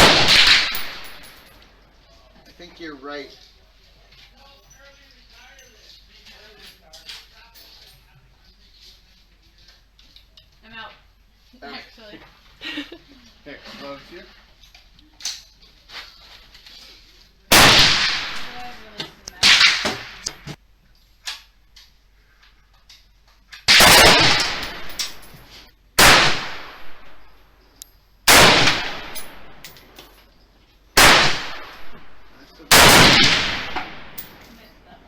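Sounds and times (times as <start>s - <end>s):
rifle single shots echoing: 0.0s - 1.3s, 17.5s - 20.5s, 23.7s - 25.2s, 26.0s - 27.2s, 28.3s - 29.6s, 31.0s - 34.3s.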